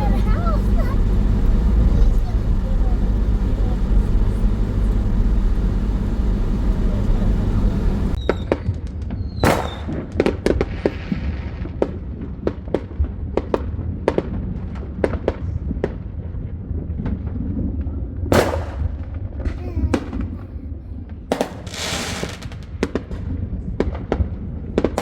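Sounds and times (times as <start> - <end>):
car ride rumble: 0.0 - 8.2
firecrackers popping: 0.0 - 25.0
firework whistle: 5.9 - 11.3, 21.3 - 22.6.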